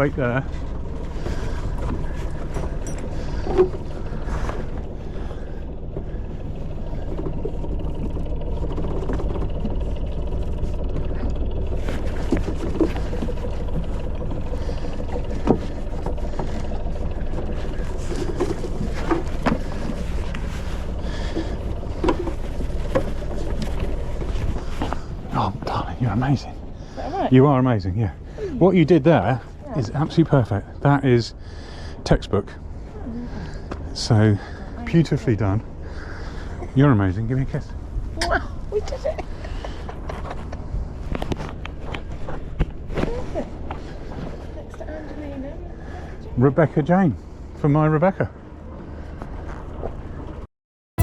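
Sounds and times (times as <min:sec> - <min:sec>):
boat engine running at low speed: 0:00.0 - 0:50.5
sharp knocks and clicks from boat: 0:00.5 - 0:25.4, 0:39.1 - 0:44.9.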